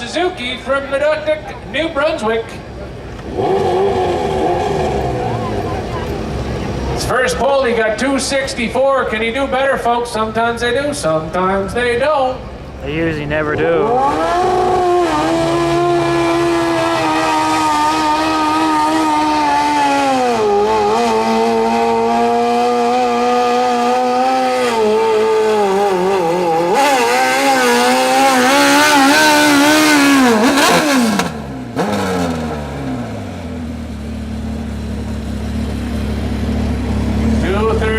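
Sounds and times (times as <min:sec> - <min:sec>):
tractor engine at high revs: 0:02.2 - 0:07.3, 0:12.9 - 0:37.9.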